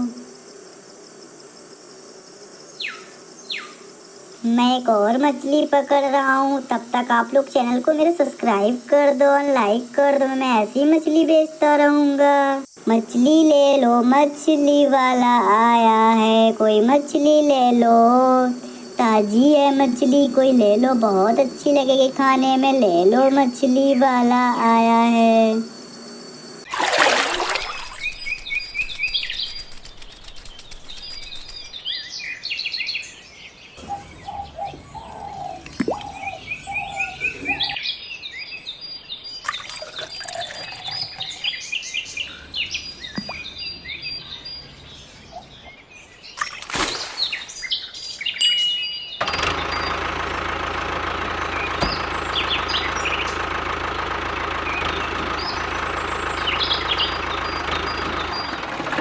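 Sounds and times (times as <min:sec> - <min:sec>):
birds chirping: 0:12.5 - 0:50.0, 0:51.3 - 0:59.0
small diesel engine running: 0:16.1 - 0:31.8, 0:33.8 - 0:37.8, 0:42.0 - 0:45.6, 0:49.2 - 0:59.0.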